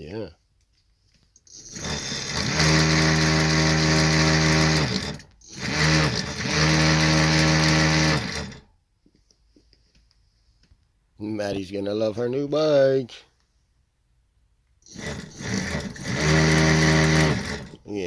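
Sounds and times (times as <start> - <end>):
motor driving knobby tyre: 1.6 - 8.6, 14.9 - 17.8.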